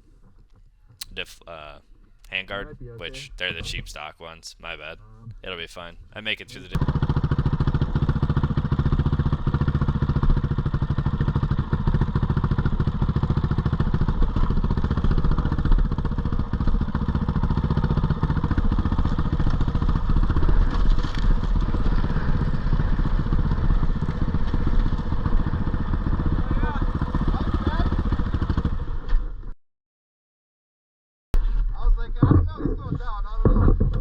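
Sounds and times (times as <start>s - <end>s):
dirt bike engine running: 6.8s - 29.4s.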